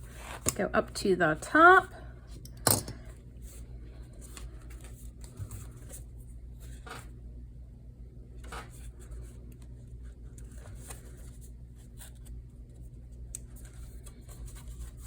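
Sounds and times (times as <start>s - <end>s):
low steady hum: 0.0s - 15.0s
paper rustling and scratching: 8.4s - 15.0s.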